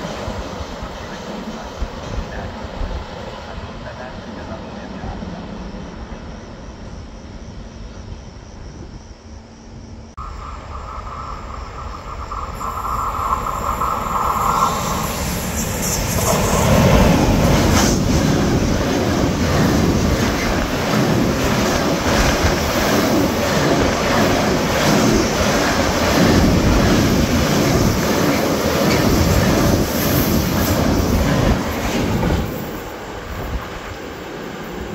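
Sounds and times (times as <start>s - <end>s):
train wheels rumbling and rattling: 10.2s - 34.9s.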